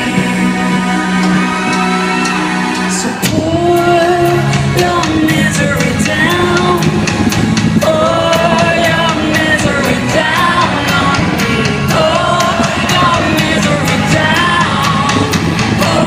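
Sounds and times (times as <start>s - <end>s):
distorted guitars: 0.0s - 16.0s
drum and cymbal beat: 0.0s - 16.0s
rock song with sung vocal: 0.0s - 16.0s.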